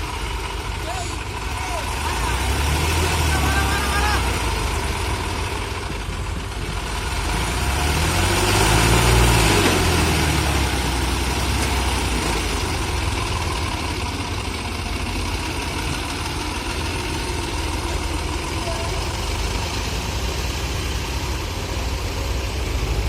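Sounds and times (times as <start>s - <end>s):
diesel engine idling and revving: 0.0s - 23.0s.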